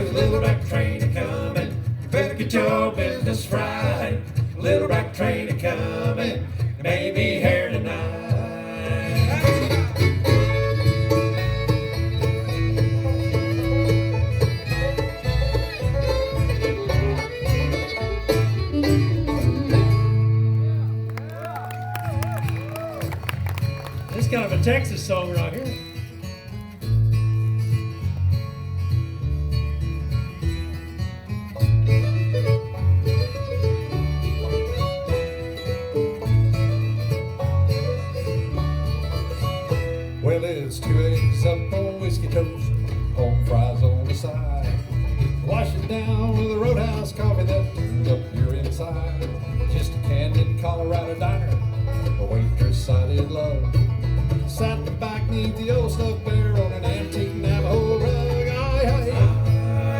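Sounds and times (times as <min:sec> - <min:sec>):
acoustic guitar: 0:00.0 - 0:59.9
bluegrass band playing: 0:00.0 - 0:59.9
low bass notes: 0:00.0 - 0:59.9
picked banjo: 0:00.0 - 0:59.9
fiddle: 0:07.7 - 0:59.9.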